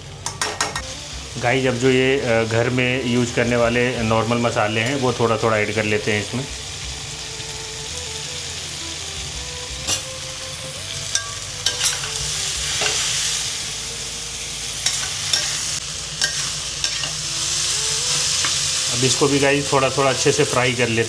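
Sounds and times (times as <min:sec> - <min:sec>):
food sizzling in oil: 0:00.0 - 0:21.0
utensil scraping pan: 0:09.8 - 0:10.3, 0:11.1 - 0:13.5, 0:14.8 - 0:17.3.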